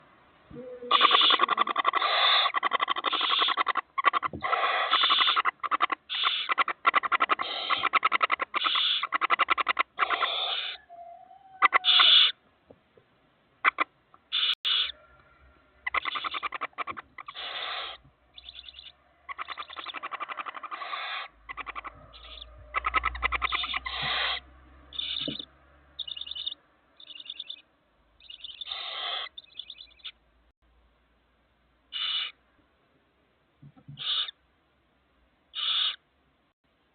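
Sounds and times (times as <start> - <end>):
owl chicks hissing begging calls: 0.9 - 12.4, 13.6 - 15.0, 15.8 - 27.6, 28.2 - 30.1, 31.9 - 32.4, 34.0 - 34.4, 35.5 - 36.0.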